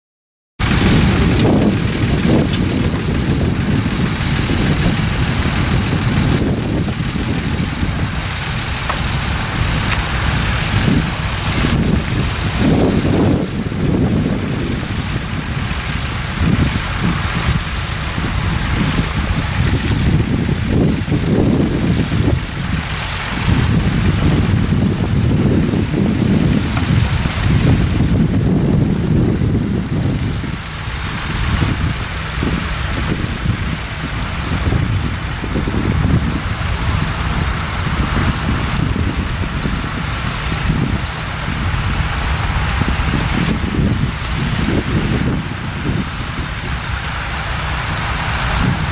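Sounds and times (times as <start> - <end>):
tractor engine running: 0.6 - 48.9
wind buffeting microphone: 0.6 - 48.9
hiss: 36.5 - 48.9.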